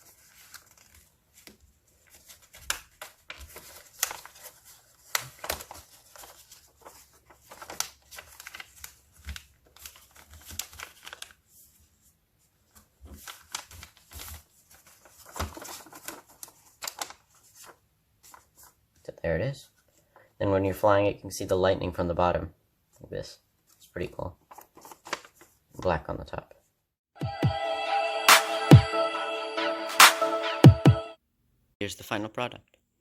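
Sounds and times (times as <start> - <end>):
paper crinkling: 0.0 - 18.8, 24.4 - 25.6.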